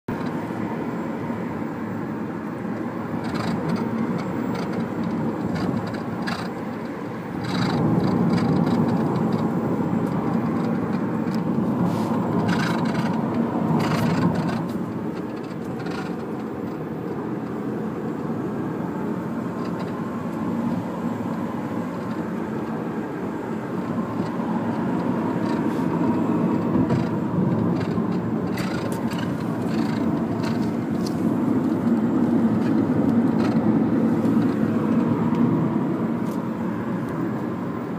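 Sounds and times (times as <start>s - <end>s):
road and tyre noise: 0.1s - 37.9s
suspension knocks and rattles: 3.1s - 17.6s, 23.9s - 35.3s.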